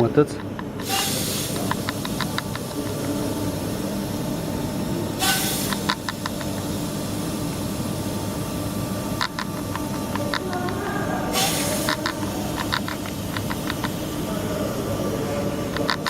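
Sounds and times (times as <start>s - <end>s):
workshop background noise: 0.0s - 16.0s
sharp clicks: 0.4s - 3.2s, 5.6s - 6.7s, 9.2s - 14.0s
hissing burst: 0.4s - 16.0s.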